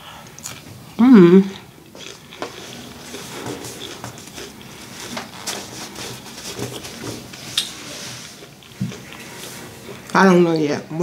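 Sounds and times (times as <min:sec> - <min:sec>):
chewing with mouth clicks: 0:00.2 - 0:00.7, 0:01.5 - 0:05.5.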